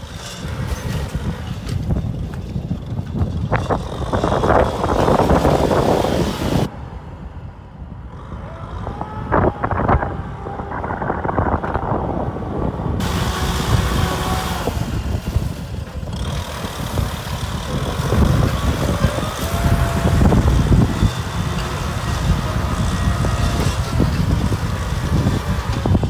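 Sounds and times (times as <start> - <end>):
tractor diesel engine running: 0.0 - 26.0
wind on microphone: 0.0 - 26.0.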